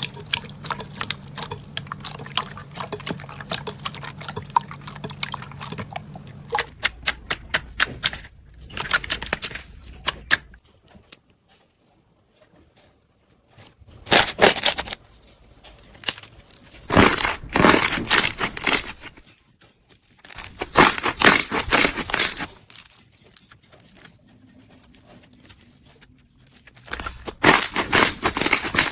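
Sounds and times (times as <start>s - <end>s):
slime squishing and crackling: 0.0s - 8.0s, 15.9s - 19.2s, 20.1s - 28.9s.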